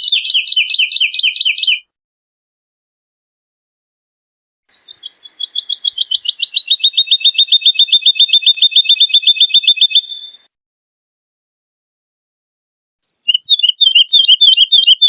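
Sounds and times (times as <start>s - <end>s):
woodlark singing liquid notes: 4.7s - 10.5s, 13.0s - 15.0s.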